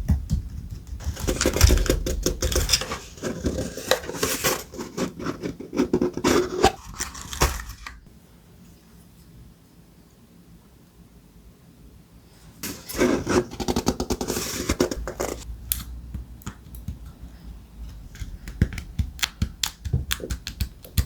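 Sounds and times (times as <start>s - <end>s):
paper rustling and scratching: 1.0s - 8.1s, 12.6s - 15.5s.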